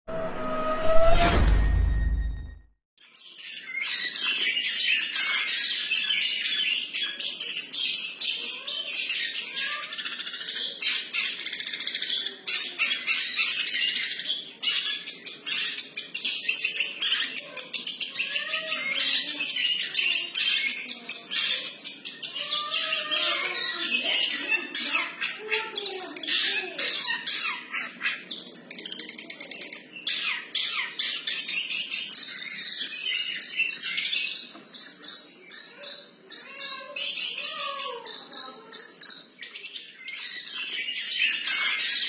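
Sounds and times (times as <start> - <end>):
loud horn-like tone: 0.1 - 2.6
bird singing rapid chirps: 3.0 - 42.0.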